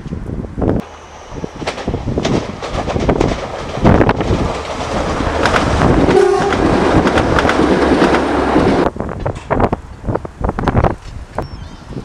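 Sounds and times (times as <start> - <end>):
passenger train passing: 0.1 - 12.0.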